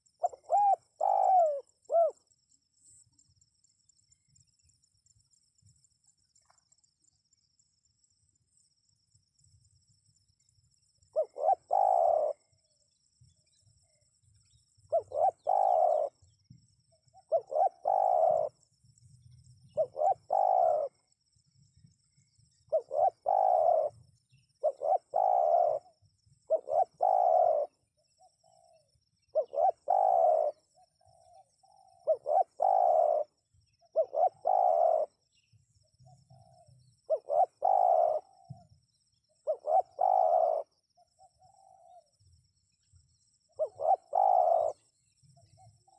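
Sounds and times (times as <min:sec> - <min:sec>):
dove cooing: 0:00.0 - 0:02.2, 0:11.1 - 0:12.6, 0:14.9 - 0:18.6, 0:19.7 - 0:21.1, 0:22.7 - 0:35.3, 0:36.0 - 0:42.1, 0:43.5 - 0:45.9
crickets chirring: 0:00.0 - 0:45.9.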